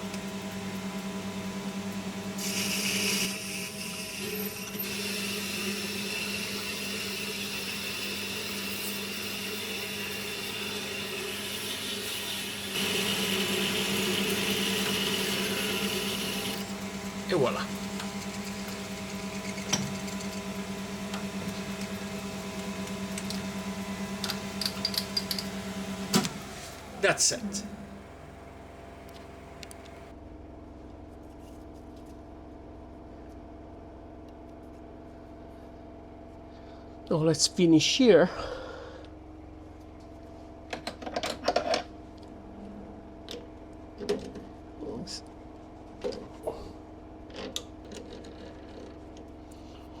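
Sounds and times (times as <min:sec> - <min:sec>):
electric motor humming: 0:00.2 - 0:30.1.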